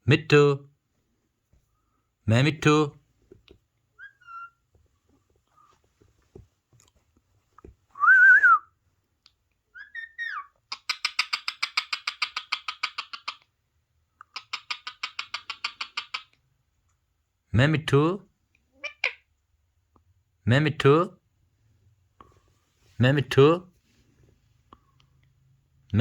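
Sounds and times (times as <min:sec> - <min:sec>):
parrot calls: 0:04.0 - 0:04.6, 0:09.7 - 0:13.4, 0:14.3 - 0:16.4, 0:18.8 - 0:19.3.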